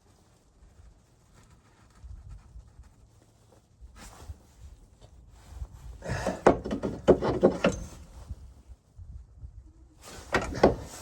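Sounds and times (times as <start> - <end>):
shock absorber knocking and rattling: 6.0 - 8.3, 10.2 - 11.0.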